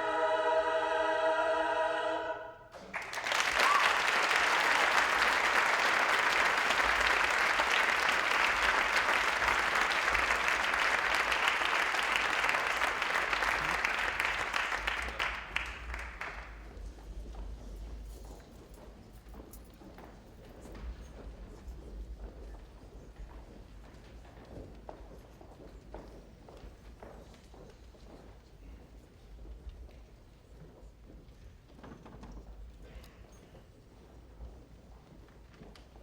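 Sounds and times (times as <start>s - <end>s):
choir holding a chord: 0.0s - 2.7s
audience applauding: 2.8s - 16.7s.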